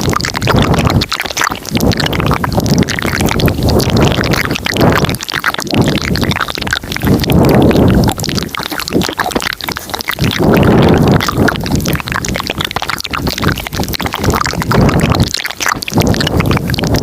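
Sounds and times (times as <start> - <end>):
wet mouth clicks and smacks: 0.0 - 17.0.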